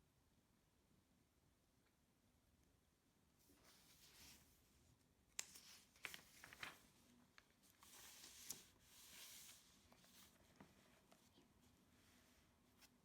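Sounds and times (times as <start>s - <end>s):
pages rustling: 5.4s - 11.4s.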